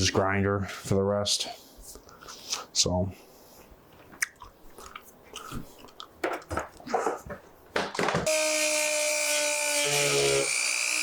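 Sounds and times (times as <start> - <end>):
electric grinder whining: 8.3 - 11.0.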